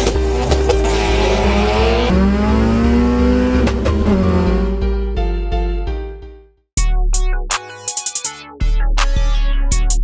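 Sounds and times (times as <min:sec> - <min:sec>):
racing car engine accelerating: 0:00.3 - 0:04.9
electronic music with beat: 0:06.8 - 0:10.0.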